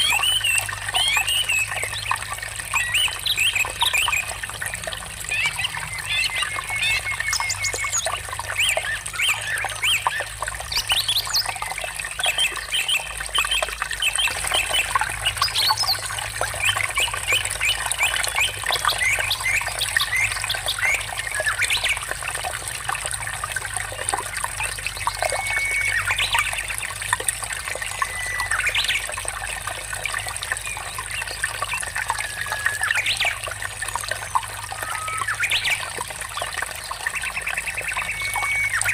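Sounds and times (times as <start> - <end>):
birds calling: 0.0 - 22.2, 30.2 - 38.9
water trickling and babbling: 0.0 - 38.9.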